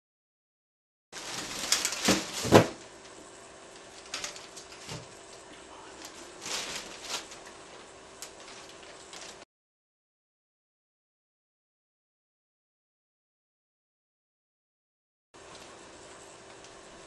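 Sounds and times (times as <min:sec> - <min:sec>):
bag rustling: 0:01.2 - 0:02.8, 0:06.0 - 0:07.5
faint steady hum: 0:01.2 - 0:09.4.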